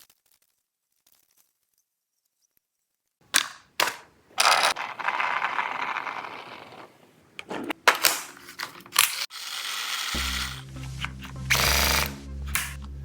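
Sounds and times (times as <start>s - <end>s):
sharp plastic clicks: 3.2s - 5.0s
toy blaster mechanical rattle: 3.4s - 7.0s, 8.0s - 10.6s, 11.5s - 12.8s.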